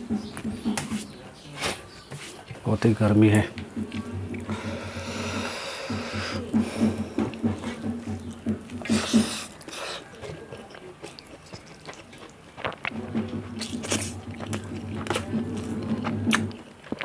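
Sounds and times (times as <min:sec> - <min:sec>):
person chewing crunchy food: 0:03.7 - 0:17.0.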